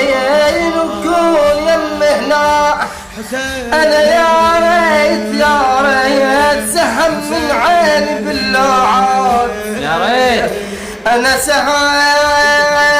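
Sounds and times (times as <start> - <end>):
person singing a lament: 0.0 - 12.9.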